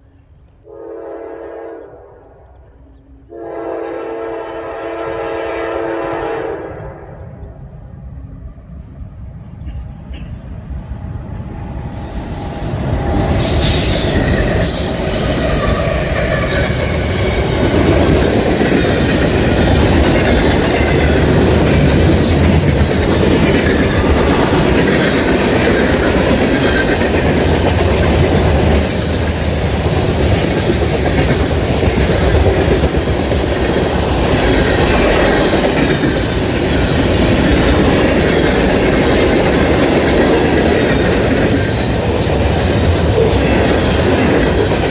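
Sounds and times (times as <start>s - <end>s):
freight train wheels rumbling: 0.0s - 44.9s
high wheel squeals: 7.2s - 18.4s
wheels clacking over rail joints: 7.4s - 44.9s.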